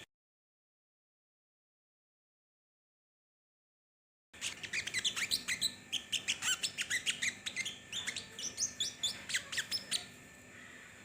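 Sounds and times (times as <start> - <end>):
songbird chirping and whistling: 4.4 - 10.2.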